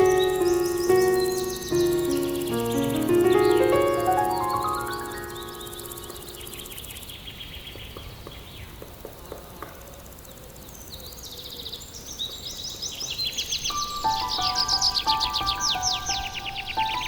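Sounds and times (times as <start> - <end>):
songbirds chirping in trills: 0.0 - 7.9, 11.7 - 17.0
steady outdoor hiss: 0.0 - 17.0.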